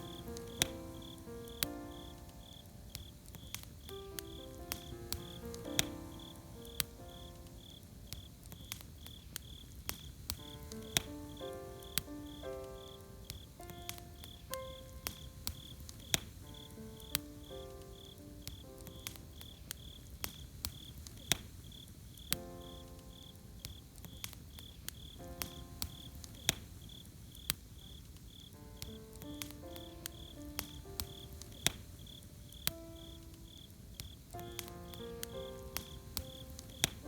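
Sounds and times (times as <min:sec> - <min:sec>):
soft instrumental melody: 0:00.0 - 0:08.6, 0:10.4 - 0:19.9, 0:28.6 - 0:37.0
campfire crackling and popping: 0:00.0 - 0:37.0
crickets chirping: 0:00.0 - 0:37.0.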